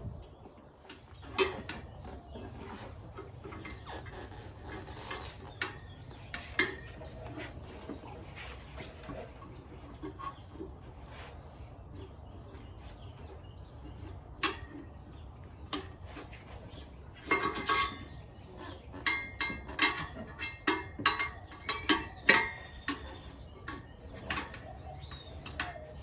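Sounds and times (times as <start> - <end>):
tire spoons clinking on rim: 17.1 - 26.0.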